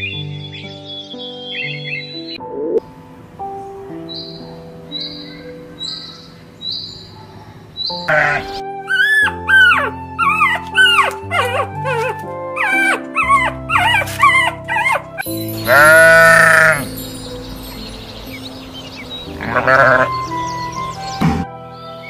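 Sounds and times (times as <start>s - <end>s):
background music: 0.0s - 22.0s
sheep bleating: 8.1s - 8.6s, 15.6s - 16.9s, 19.3s - 20.2s
puppies whimpering: 8.1s - 17.0s, 19.0s - 21.2s.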